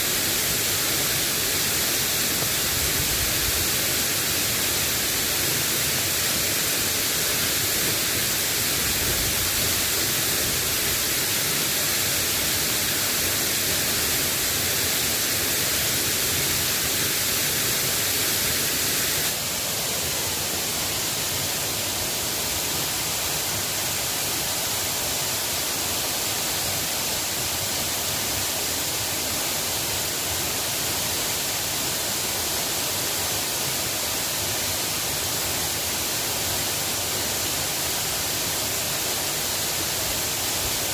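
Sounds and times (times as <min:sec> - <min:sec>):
rain hissing: 0:00.0 - 0:32.2.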